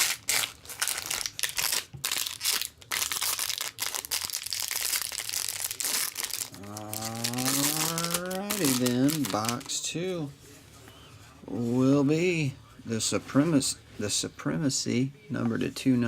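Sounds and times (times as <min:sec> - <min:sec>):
plastic wrapping crinkling and tearing: 0:00.0 - 0:10.0
person speaking: 0:05.8 - 0:16.0.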